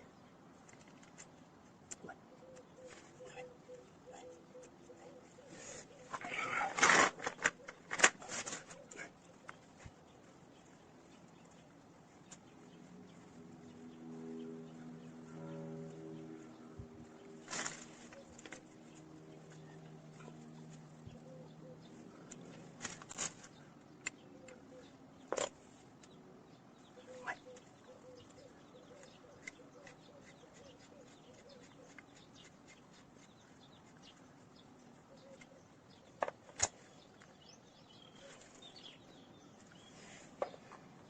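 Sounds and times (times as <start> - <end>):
faint bird chirps: 1.9 - 6.8, 23.3 - 40.8.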